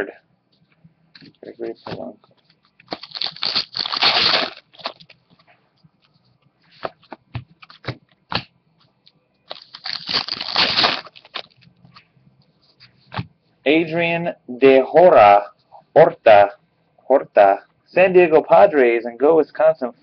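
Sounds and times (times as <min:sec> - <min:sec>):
wrappers tearing and crinkling: 0:02.8 - 0:05.2, 0:09.5 - 0:11.7.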